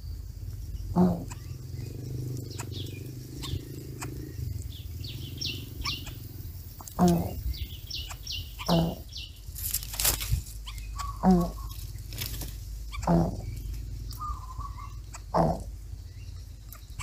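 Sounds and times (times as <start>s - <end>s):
low clucking bird calls: 0.0s - 17.0s
faint high chirps: 0.7s - 9.4s
sharp clicks: 1.1s - 1.5s, 16.7s - 17.0s.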